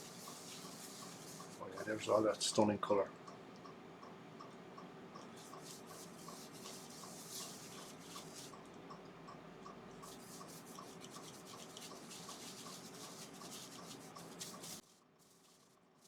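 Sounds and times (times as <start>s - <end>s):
cloth rubbing on a wooden bowl: 0.0s - 2.2s, 5.4s - 8.6s, 10.0s - 15.7s.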